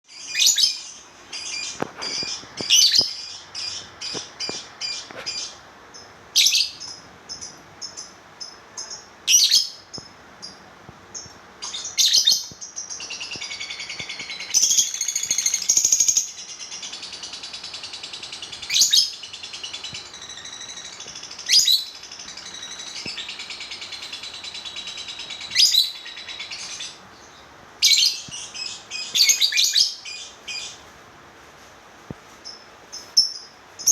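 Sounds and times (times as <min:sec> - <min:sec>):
lovebird shrill high chirps: 0:11.6 - 0:16.9, 0:18.3 - 0:27.0.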